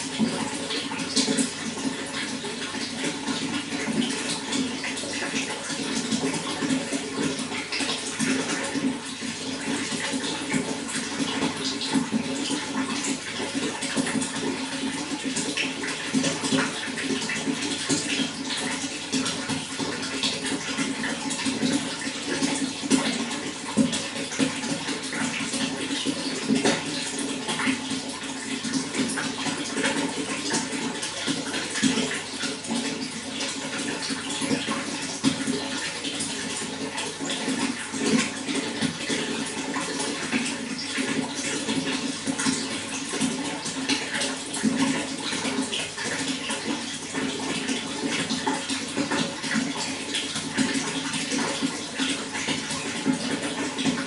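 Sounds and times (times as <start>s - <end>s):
running water splashing and gurgling: 0.0s - 54.0s.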